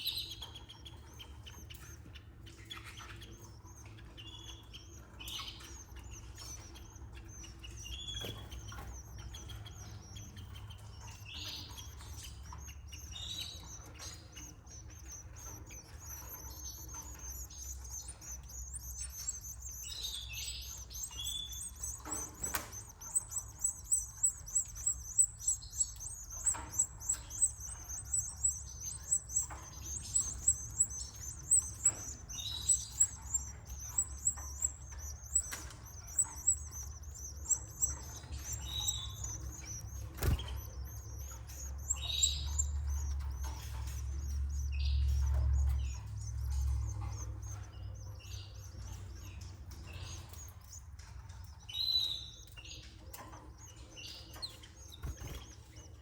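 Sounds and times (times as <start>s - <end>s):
lower bird calls: 0.0s - 50.8s
canaries chirping: 0.0s - 56.0s.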